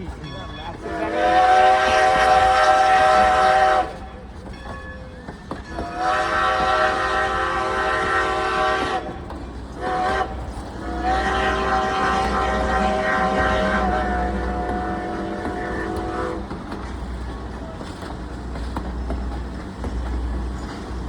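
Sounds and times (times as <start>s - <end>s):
low rumble of moving train: 0.0s - 21.0s
steam whistle blasts: 0.8s - 4.0s, 5.8s - 9.1s, 9.8s - 16.4s.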